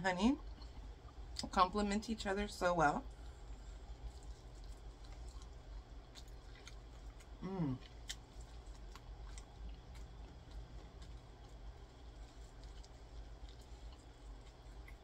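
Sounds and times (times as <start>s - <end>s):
chewing fried chicken: 0.3s - 1.6s, 2.5s - 15.0s
person humming mm: 7.4s - 7.9s.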